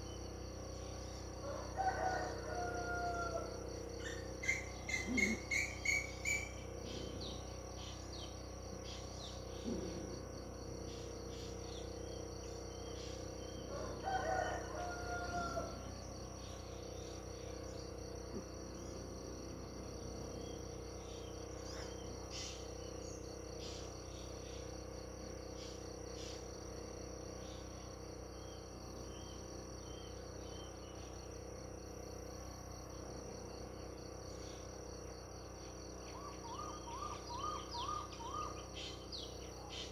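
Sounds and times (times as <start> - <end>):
insect chirring: 0.0 - 39.9
faint bird chirps: 4.0 - 13.7, 20.4 - 24.7, 36.0 - 39.9.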